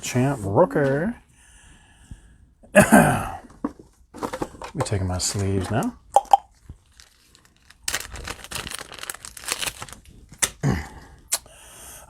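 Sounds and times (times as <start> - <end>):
plastic card sleeves crinkling: 6.5 - 10.7.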